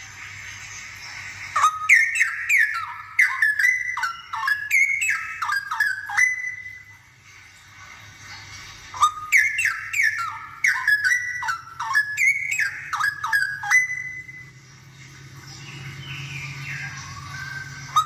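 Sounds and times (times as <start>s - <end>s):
bird singing whistled notes: 1.6s - 7.0s, 9.0s - 14.6s, 15.5s - 18.0s.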